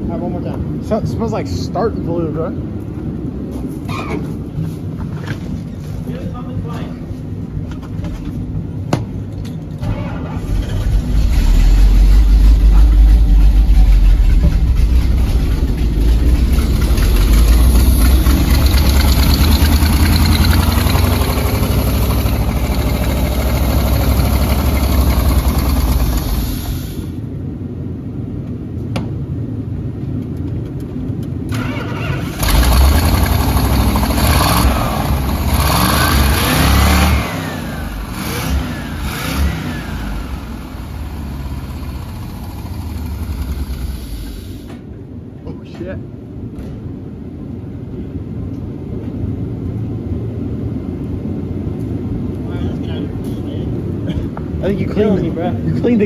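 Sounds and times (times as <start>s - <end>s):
truck engine cranking and running: 7.6s - 27.3s, 31.4s - 44.9s.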